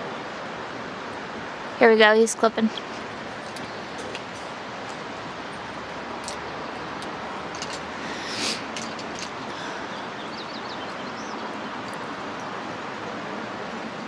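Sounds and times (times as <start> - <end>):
outdoor background rush: 0.0 - 14.0
short hiss: 8.0 - 8.8.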